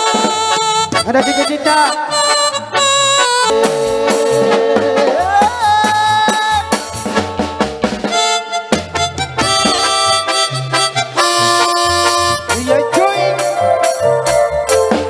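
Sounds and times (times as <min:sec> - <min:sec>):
bass: 0:00.0 - 0:15.0
drum kit: 0:00.0 - 0:15.0
lead melody of long held notes: 0:06.8 - 0:15.0.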